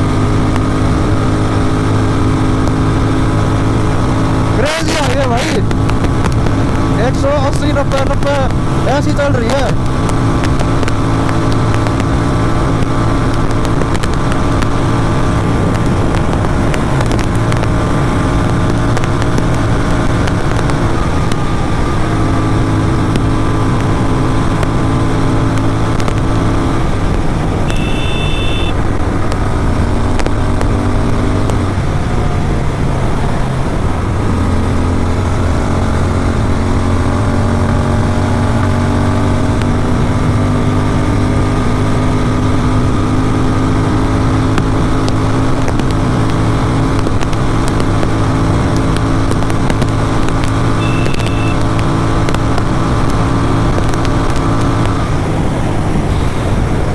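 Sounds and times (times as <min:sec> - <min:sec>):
motorcycle engine droning: 0:00.0 - 0:56.9
high beep: 0:27.6 - 0:28.8, 0:50.8 - 0:51.6.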